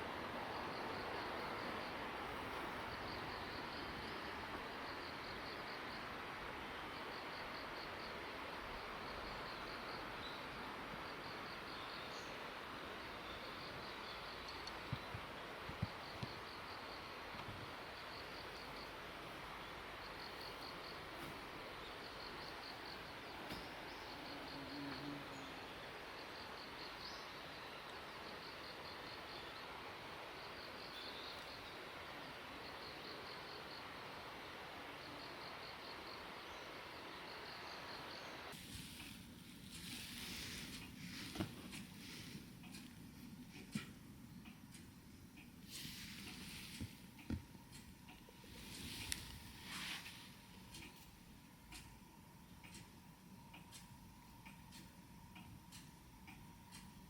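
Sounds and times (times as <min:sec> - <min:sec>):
insect chirping: 0:00.0 - 0:43.0
outdoor background hiss: 0:00.0 - 0:57.0.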